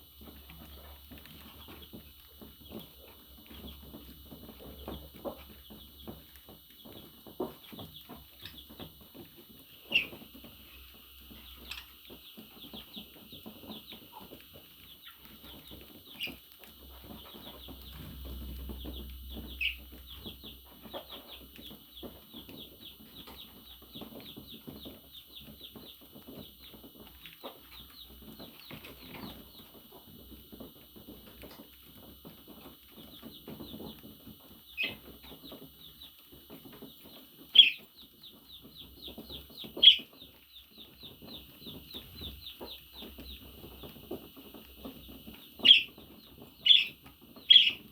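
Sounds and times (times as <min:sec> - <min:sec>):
budgerigar chirping: 0:09.9 - 0:10.2, 0:37.5 - 0:37.8, 0:39.8 - 0:40.2, 0:45.6 - 0:46.0, 0:46.6 - 0:47.9
sharp bird calls: 0:37.5 - 0:37.9, 0:39.6 - 0:40.2, 0:45.4 - 0:47.9.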